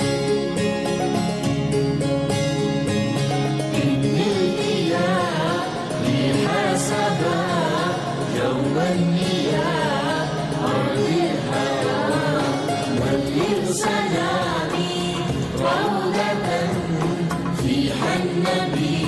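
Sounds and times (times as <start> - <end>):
solo voice singing ornamented melody: 3.8 - 19.0.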